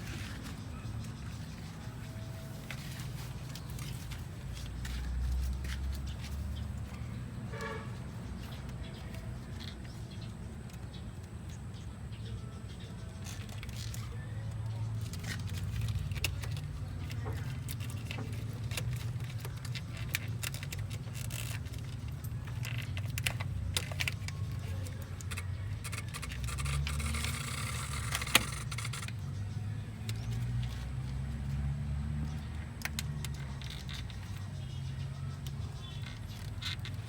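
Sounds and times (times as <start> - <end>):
metal clinking and scraping: 15.0 - 31.6.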